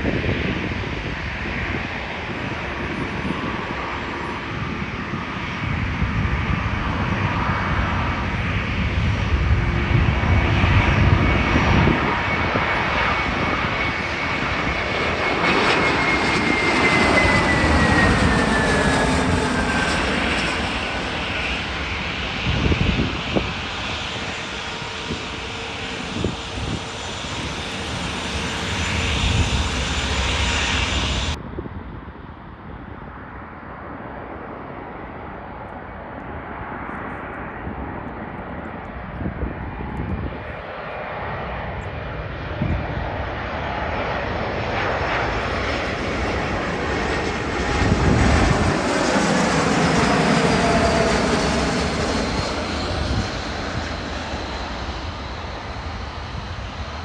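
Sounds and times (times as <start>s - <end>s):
jet airliner engines: 0.0s - 57.0s
falling engine whine: 7.8s - 31.4s.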